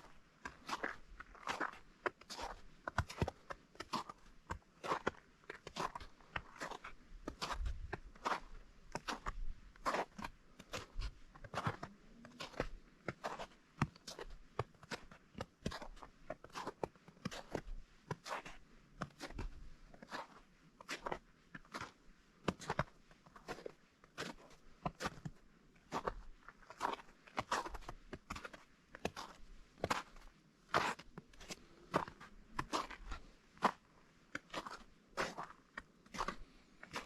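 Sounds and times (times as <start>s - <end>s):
footsteps crunching on snow: 4.8s - 17.6s, 25.9s - 37.0s.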